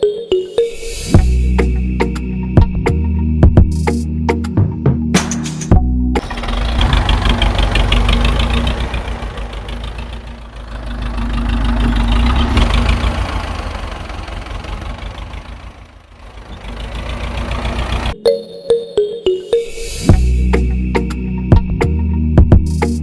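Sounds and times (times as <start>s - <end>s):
tractor engine knocking: 6.2s - 18.2s.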